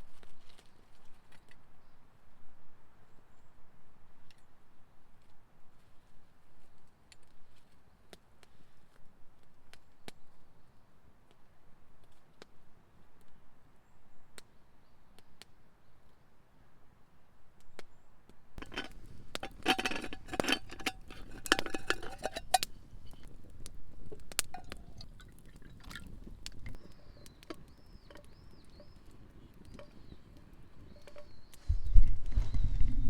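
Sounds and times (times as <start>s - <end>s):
glass vessels clinking: 18.6s - 23.3s, 24.0s - 26.8s.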